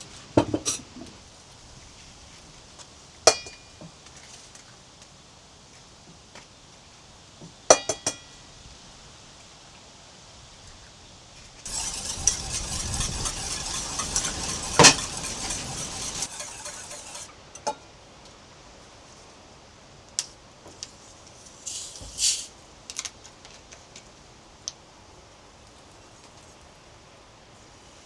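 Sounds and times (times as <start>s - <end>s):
scraping and rustling: 11.7s - 17.3s, 21.4s - 22.5s.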